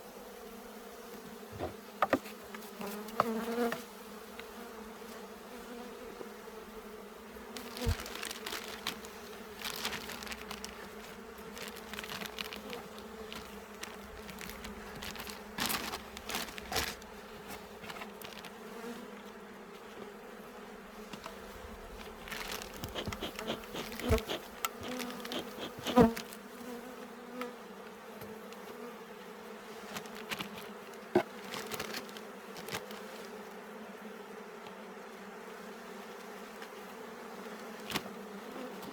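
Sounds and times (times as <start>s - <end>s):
honeybees buzzing: 0.0s - 38.9s
wooden hive frames knocking: 1.6s - 2.6s, 22.3s - 26.2s.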